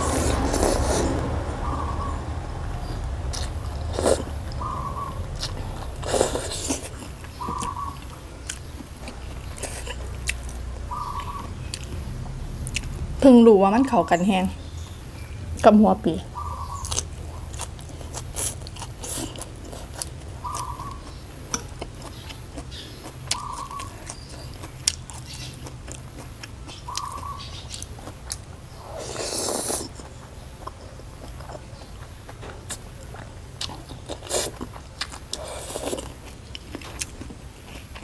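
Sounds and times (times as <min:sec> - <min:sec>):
slurping noodles: 0:00.0 - 0:01.2, 0:28.9 - 0:30.0
chewing and biting: 0:03.3 - 0:12.9, 0:16.4 - 0:38.0.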